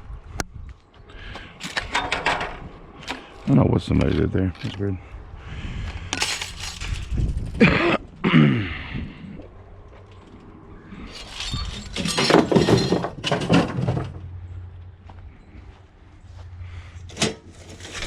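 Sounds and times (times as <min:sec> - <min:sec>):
scrap metal clattering: 0:06.2 - 0:07.8, 0:11.0 - 0:14.4, 0:17.0 - 0:18.0.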